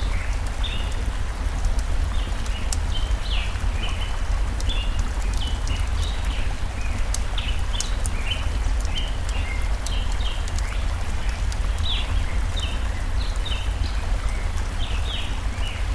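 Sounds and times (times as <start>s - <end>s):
small birds chirping: 0.0s - 15.9s
stream rushing: 0.0s - 15.9s
campfire crackling and popping: 1.5s - 11.9s.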